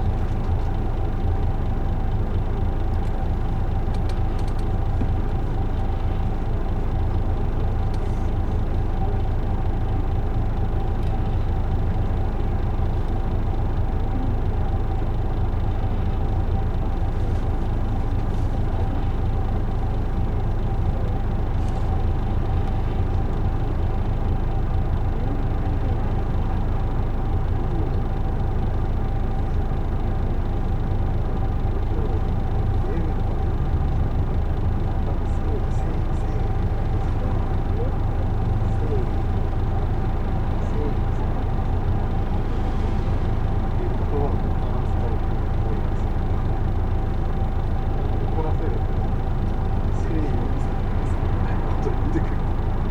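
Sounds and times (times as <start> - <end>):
bus diesel engine rumbling: 0.0 - 52.9.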